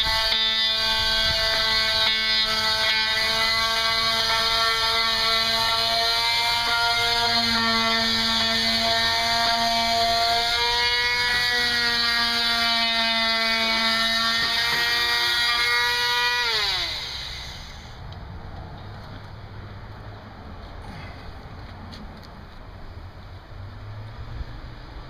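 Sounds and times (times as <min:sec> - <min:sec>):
electric sander whining: 0:00.0 - 0:18.0.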